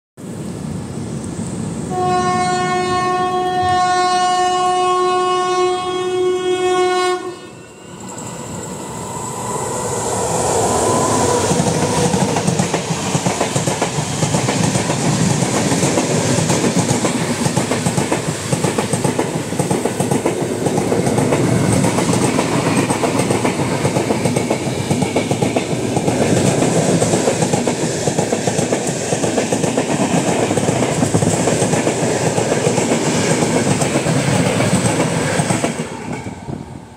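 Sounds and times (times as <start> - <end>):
express train rushing past: 0.2 - 36.9
train horn: 1.9 - 7.8.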